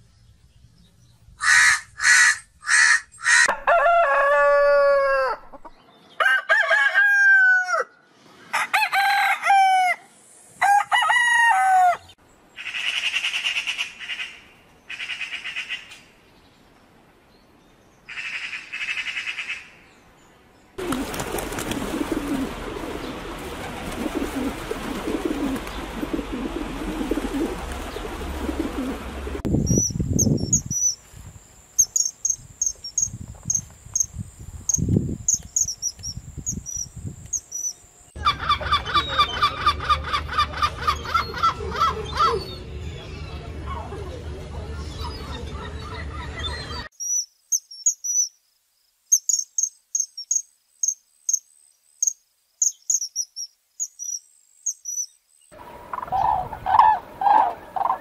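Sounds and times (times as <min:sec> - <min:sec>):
long falling bird calls: 0:12.0 - 0:39.6
rustling noise: 0:29.5 - 0:31.6.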